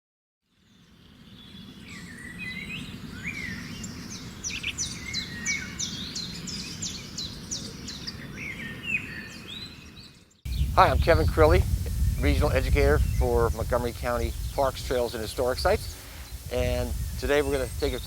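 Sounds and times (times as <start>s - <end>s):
songbirds chirping and whistling: 0.6s - 18.0s
low background rumble: 10.5s - 18.0s.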